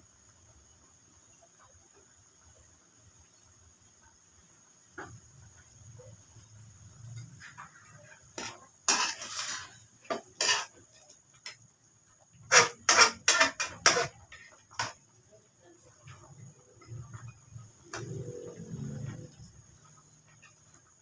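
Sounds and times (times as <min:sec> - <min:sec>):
metal utensils clattering on pots: 0:07.0 - 0:11.7, 0:12.3 - 0:15.2
utensil scraping: 0:07.2 - 0:11.6, 0:12.4 - 0:15.0.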